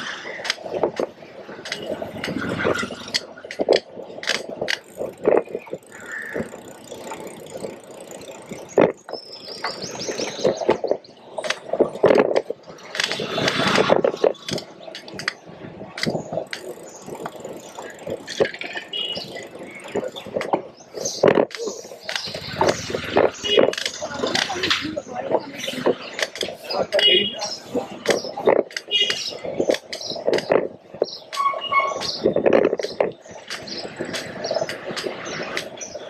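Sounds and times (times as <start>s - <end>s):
traffic hum: 0.0s - 36.0s
passing vehicle rush: 5.0s - 28.5s.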